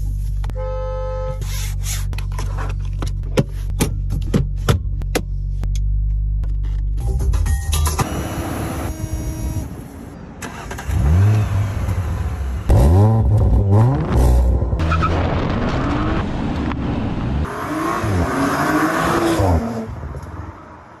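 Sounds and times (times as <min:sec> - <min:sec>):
car engine revving: 0:10.4 - 0:20.0.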